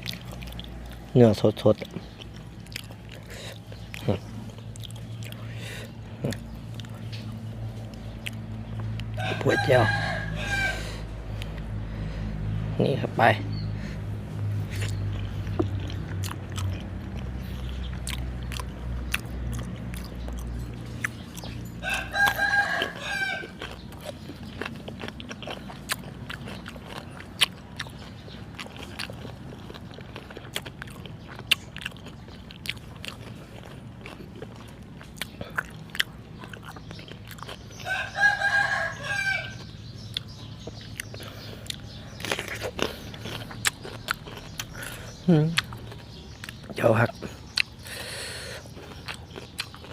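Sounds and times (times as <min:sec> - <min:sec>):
chewing and biting food: 0:00.0 - 0:12.5, 0:13.5 - 0:49.9
rooster crowing: 0:09.1 - 0:11.1, 0:21.8 - 0:23.7, 0:37.8 - 0:39.7.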